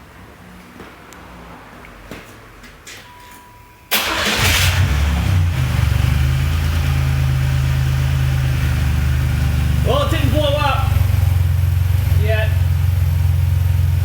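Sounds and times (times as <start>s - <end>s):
car engine cranking and idling: 3.9s - 14.0s.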